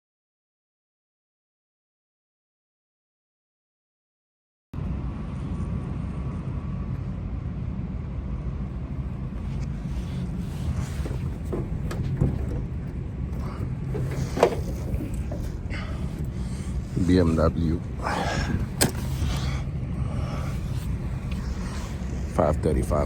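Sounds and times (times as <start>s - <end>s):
faint clicks and knocks: 9.6s - 16.4s.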